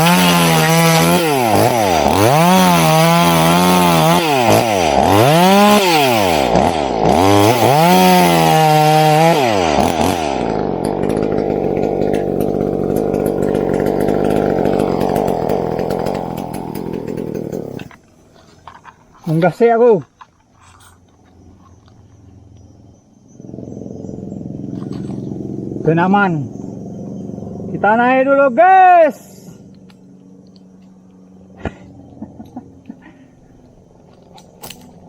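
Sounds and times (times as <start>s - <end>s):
chainsaw revving and running: 0.0s - 18.0s, 23.4s - 28.0s, 31.4s - 33.2s.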